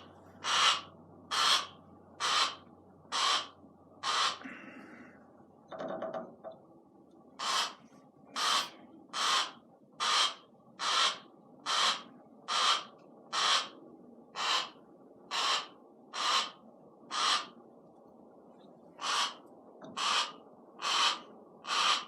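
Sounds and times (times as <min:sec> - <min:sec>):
hawk rasping squawk: 0:00.0 - 0:04.5, 0:07.4 - 0:13.8, 0:14.4 - 0:17.6, 0:19.0 - 0:22.0.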